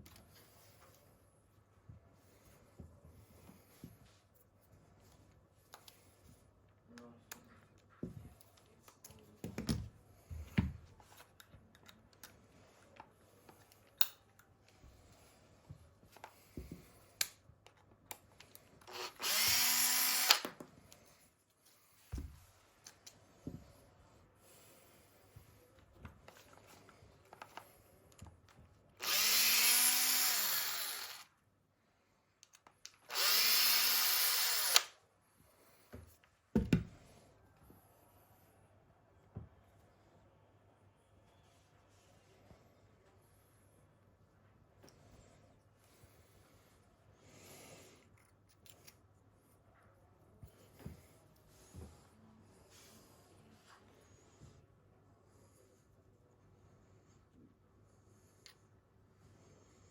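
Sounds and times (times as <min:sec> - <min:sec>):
small power drill spinning: 0:18.8 - 0:20.6, 0:29.0 - 0:31.4, 0:32.9 - 0:35.0.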